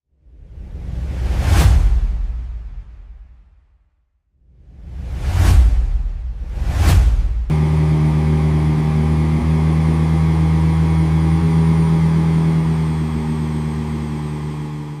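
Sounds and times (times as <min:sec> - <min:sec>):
truck diesel engine running: 0:07.5 - 0:15.0.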